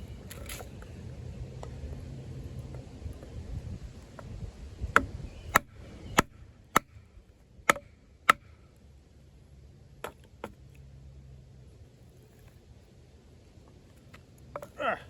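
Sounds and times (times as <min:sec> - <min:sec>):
knife striking into wood: 0:04.9 - 0:07.0, 0:07.7 - 0:08.6.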